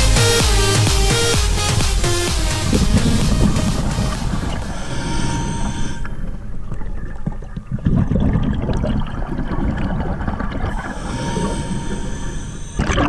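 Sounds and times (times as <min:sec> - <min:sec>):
gurgling water: 0:02.7 - 0:13.0
underwater low rumble: 0:02.7 - 0:13.0.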